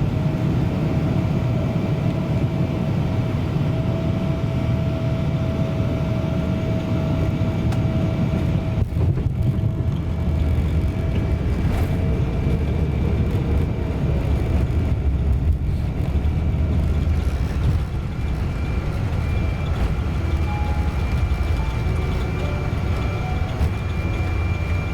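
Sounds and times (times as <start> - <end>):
airliner cabin rumble: 0.0 - 24.9
faint whining tones: 10.8 - 24.9.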